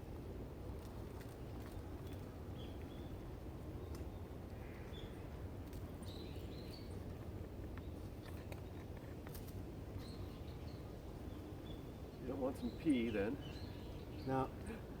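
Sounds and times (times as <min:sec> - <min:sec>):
bird chirping: 0:05.9 - 0:07.0, 0:10.0 - 0:14.9.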